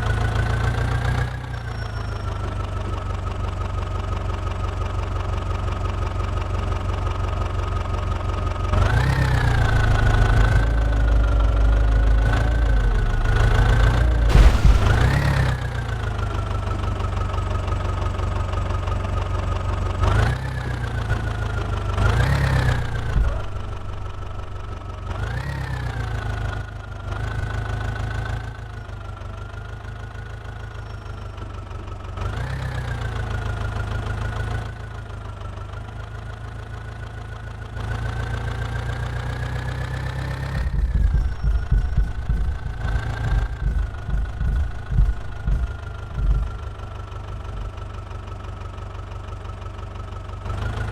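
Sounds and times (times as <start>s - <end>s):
uneven low knocks: 14.3s - 15.4s, 40.7s - 47.9s.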